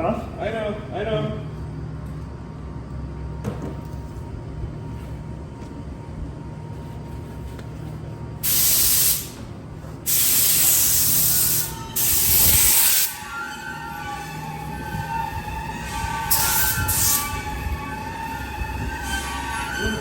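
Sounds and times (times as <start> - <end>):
low machinery hum: 0.0 - 20.0
spray nozzles hissing: 8.4 - 9.4, 10.1 - 13.2
faint wavering whine: 11.4 - 20.0.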